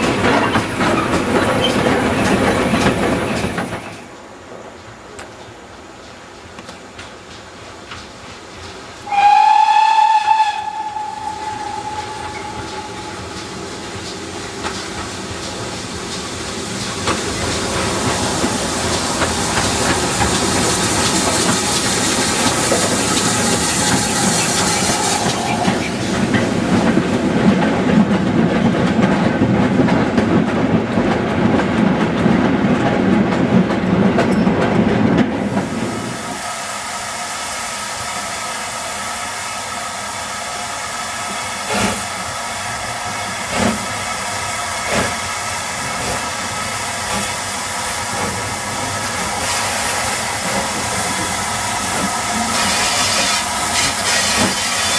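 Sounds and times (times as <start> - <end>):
steam hissing: 8.6 - 27.5, 35.4 - 54.9
steam locomotive whistle: 9.0 - 13.8, 22.4 - 26.3.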